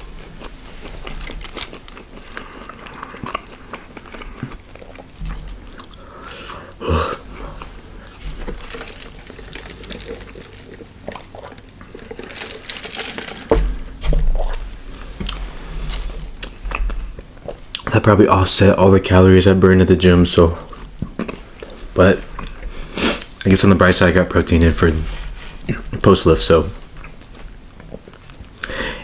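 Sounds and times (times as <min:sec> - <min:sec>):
person biting and chewing: 0:00.2 - 0:13.5.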